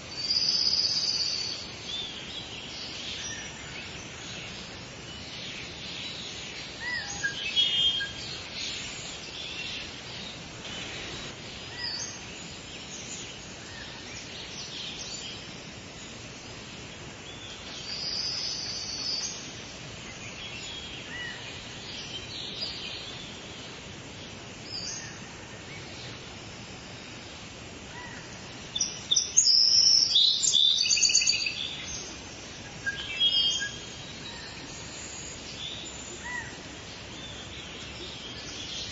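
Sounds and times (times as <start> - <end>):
steady background hiss: 0.0 - 38.9
wild birds singing and chirping: 0.0 - 38.9.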